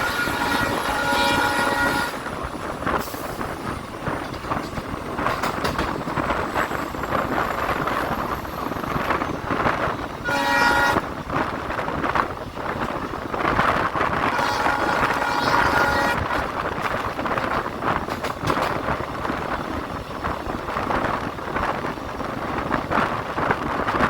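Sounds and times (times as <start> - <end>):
locomotive horn blast: 0.0 - 2.4, 10.2 - 11.2, 14.2 - 16.6
train wheels rumbling on track: 0.0 - 24.0
wind buffeting microphone: 0.0 - 24.0.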